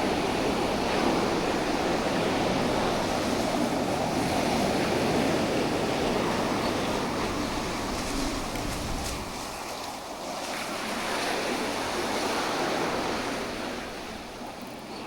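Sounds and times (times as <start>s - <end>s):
sea surf washing onto beach: 0.0s - 15.0s
wind buffeting microphone: 0.0s - 15.0s.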